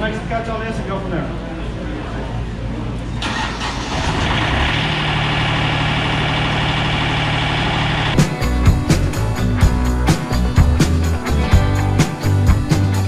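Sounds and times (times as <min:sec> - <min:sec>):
sawmill diesel engine running: 0:03.2 - 0:11.1.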